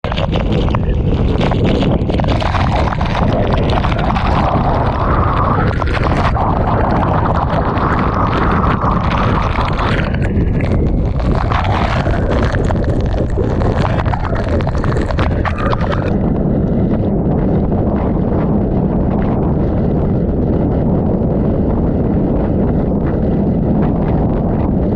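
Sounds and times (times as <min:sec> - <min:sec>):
strong wind blasting microphone: 0:00.0 - 0:24.9
torrential rain lashing down: 0:00.1 - 0:16.2.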